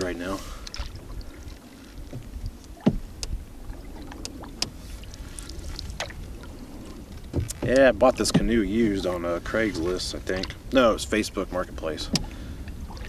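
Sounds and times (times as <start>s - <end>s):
paddle strokes through water: 0.0s - 13.0s
knocks against hull: 2.0s - 3.4s, 7.3s - 8.7s, 12.1s - 12.4s.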